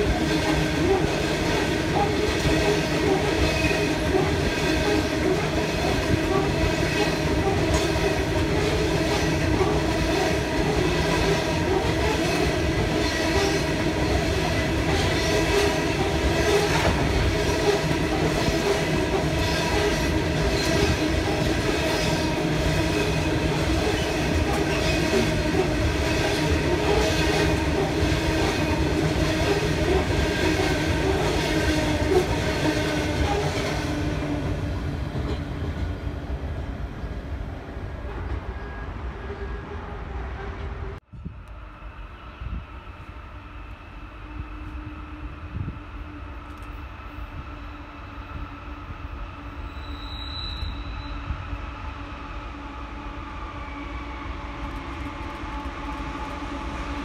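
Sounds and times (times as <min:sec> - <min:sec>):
freight train rolling past: 0:00.0 - 0:57.0.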